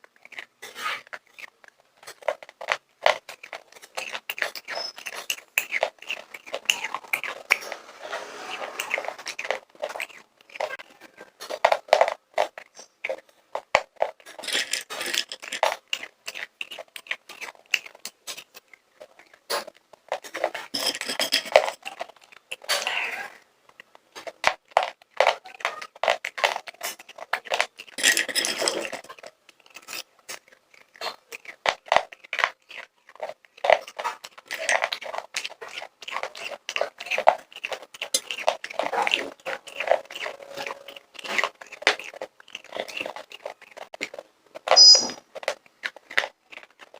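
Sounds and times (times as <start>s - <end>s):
popcorn crunching and chewing: 0.0s - 46.9s
scraping and rustling: 3.5s - 13.2s, 14.0s - 15.8s, 25.2s - 30.5s.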